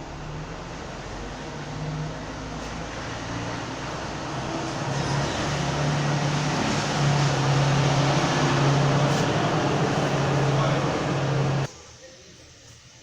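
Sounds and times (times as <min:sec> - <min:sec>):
machine humming: 0:03.1 - 0:11.7.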